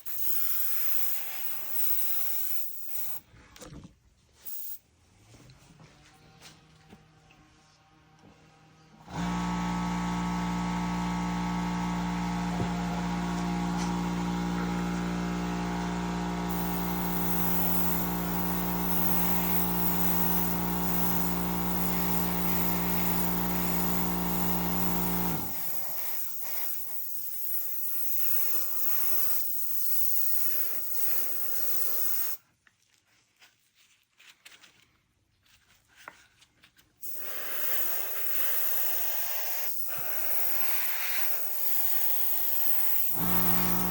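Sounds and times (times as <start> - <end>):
airbrush compressor humming: 0.0 - 3.2, 9.1 - 32.4, 37.0 - 43.9
hissing air spray: 0.0 - 3.2, 4.4 - 4.8, 16.5 - 32.4, 37.0 - 43.9.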